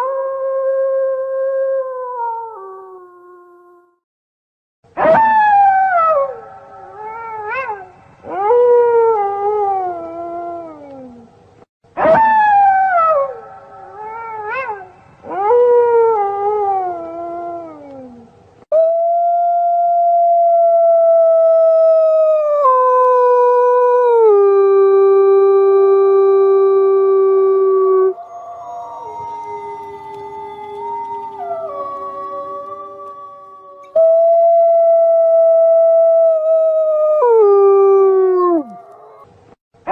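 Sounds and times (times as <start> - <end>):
wolves howling: 21.3 - 39.3.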